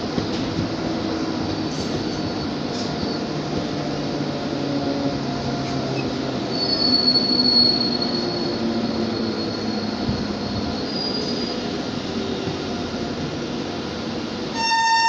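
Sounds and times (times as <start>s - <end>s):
train wheels rumbling on rail: 0.0s - 15.0s
high-pitched wheel squeal: 6.5s - 11.6s, 14.6s - 15.0s.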